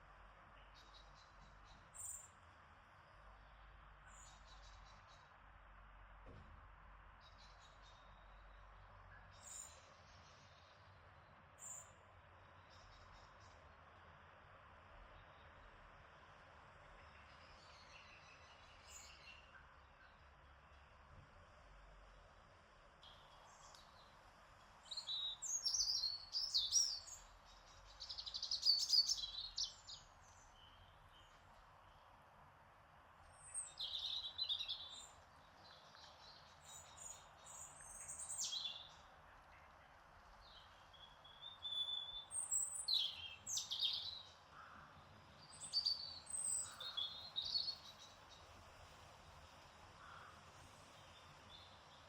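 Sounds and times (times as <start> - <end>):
faint steady hiss: 46.5 - 52.0.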